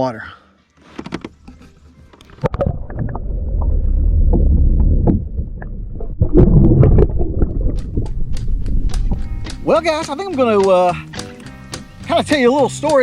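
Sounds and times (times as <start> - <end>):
low rumbling handling noise: 1.1 - 10.6
knocks and clicks: 4.8 - 11.9.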